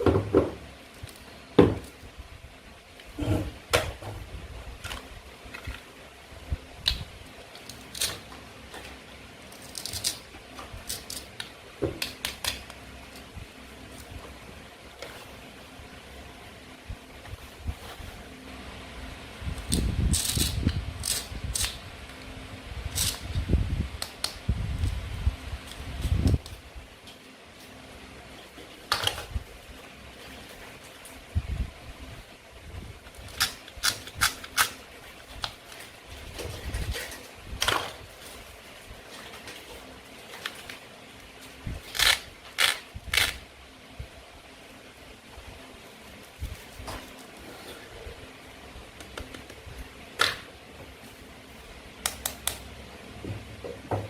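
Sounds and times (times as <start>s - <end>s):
toy knife cutting play food: 19.6s - 21.8s, 22.9s - 23.2s, 33.3s - 34.8s, 41.9s - 43.4s.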